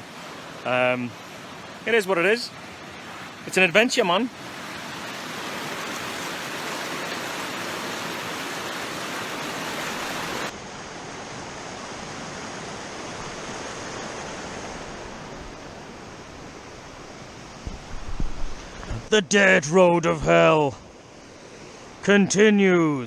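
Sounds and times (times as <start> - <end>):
rushing wind: 4.3 - 19.1.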